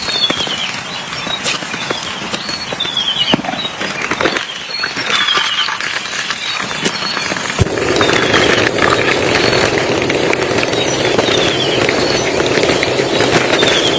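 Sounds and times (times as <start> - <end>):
drips and clicks: 0.0 - 13.9
rain falling in forest: 0.0 - 13.9
steady rushing: 7.2 - 13.9.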